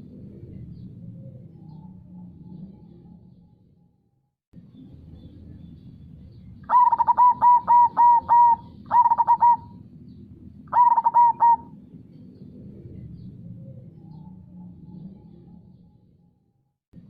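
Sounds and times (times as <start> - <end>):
steady low rush: 4.6 - 16.4
dove cooing: 6.7 - 9.8, 10.7 - 11.8.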